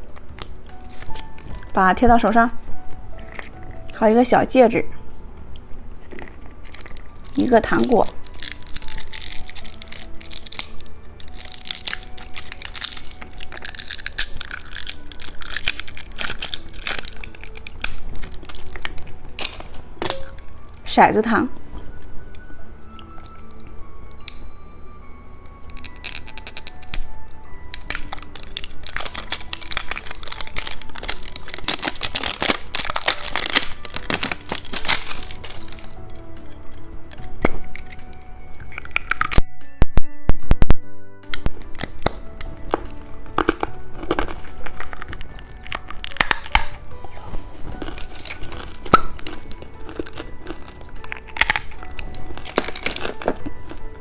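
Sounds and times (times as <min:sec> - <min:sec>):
candy crunching and chewing: 0:00.0 - 0:39.5, 0:41.3 - 0:54.0
soft background music: 0:00.0 - 0:54.0.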